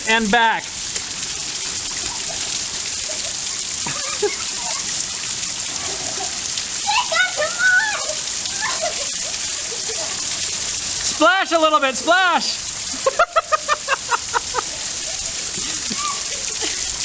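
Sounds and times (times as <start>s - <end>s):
heavy rain hissing: 0.0s - 17.0s
voices calling out: 5.9s - 12.9s.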